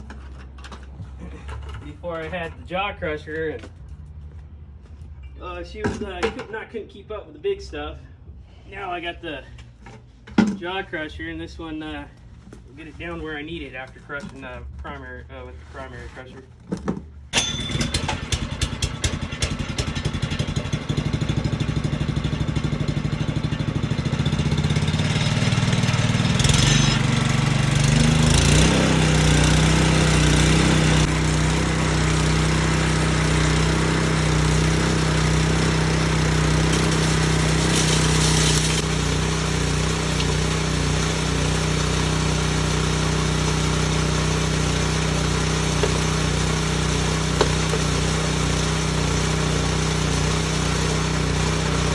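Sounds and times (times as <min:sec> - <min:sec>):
small engine starting and running: 0:17.3 - 0:51.9.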